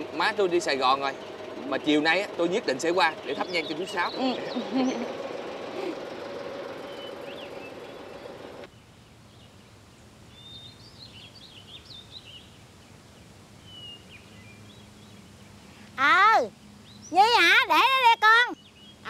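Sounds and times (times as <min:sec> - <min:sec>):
steady background drone: 0:00.0 - 0:08.7
small birds chirping: 0:00.0 - 0:19.0.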